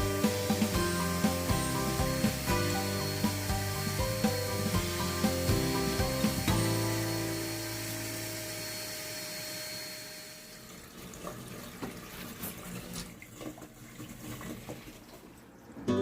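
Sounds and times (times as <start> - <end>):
background music: 0.0 - 8.0
water running: 0.0 - 15.6.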